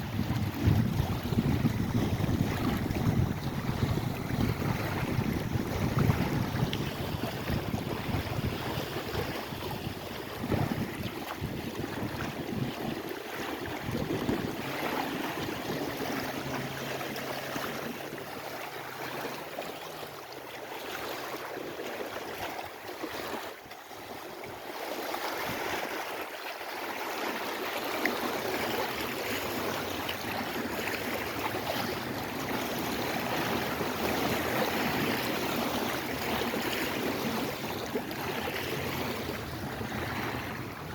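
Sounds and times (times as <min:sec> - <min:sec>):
wind buffeting microphone: 0:00.0 - 0:19.4, 0:29.5 - 0:40.9
waves washing: 0:00.0 - 0:40.9.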